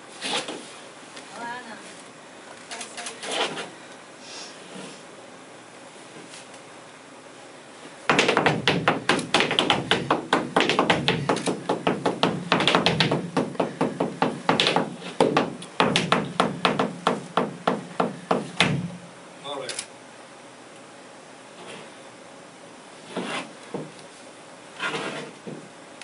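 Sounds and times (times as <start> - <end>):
flamenco shoes stamping: 8.1 - 19.0.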